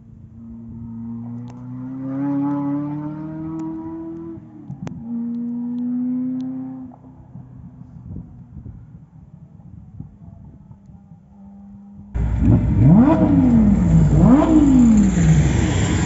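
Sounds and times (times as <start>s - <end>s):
car engine accelerating hard: 0.6s - 7.0s, 12.2s - 16.0s.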